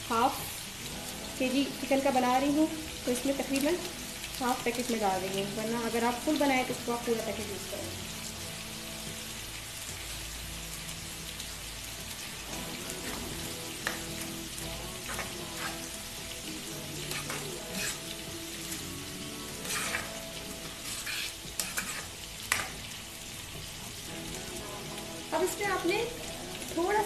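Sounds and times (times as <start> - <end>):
vegetables sizzling in hot oil: 0.0 - 27.0
spoon scraping and tapping pan: 15.1 - 15.8, 17.1 - 18.1, 19.6 - 22.8.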